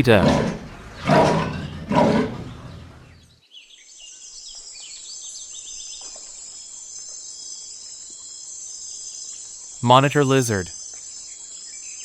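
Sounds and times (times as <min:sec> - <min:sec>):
roar: 0:00.0 - 0:03.4.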